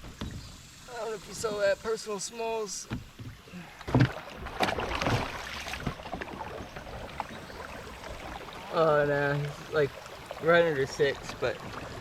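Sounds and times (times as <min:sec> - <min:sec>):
water noise: 0:00.0 - 0:12.0.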